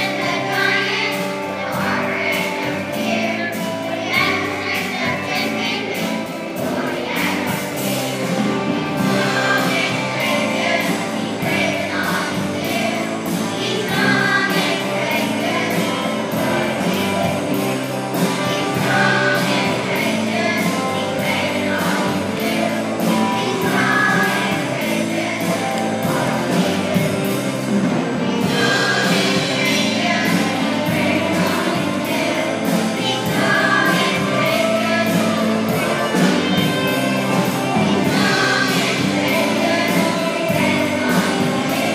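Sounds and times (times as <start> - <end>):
children's choir singing: 0.0 - 41.9.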